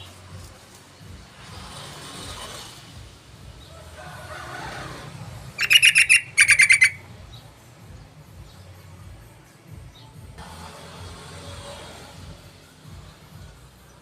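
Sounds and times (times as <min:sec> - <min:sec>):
bird rapid chattering notes: 0:05.6 - 0:07.0.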